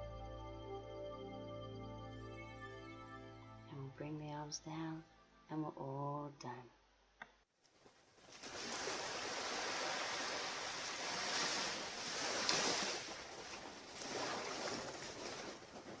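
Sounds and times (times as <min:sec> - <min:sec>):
ocean surf breaking: 0:08.3 - 0:16.0.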